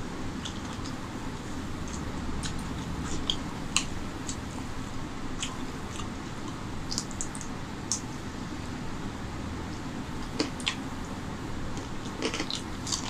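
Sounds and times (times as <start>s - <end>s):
low background noise: 0.0s - 13.0s
wet chewing with mouth clicks: 5.4s - 8.1s, 10.2s - 10.8s, 11.8s - 13.0s.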